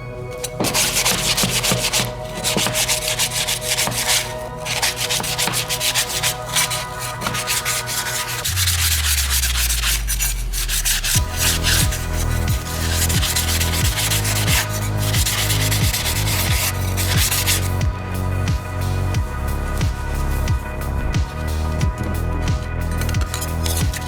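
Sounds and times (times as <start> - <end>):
hand sanding strokes: 0.3 - 24.0.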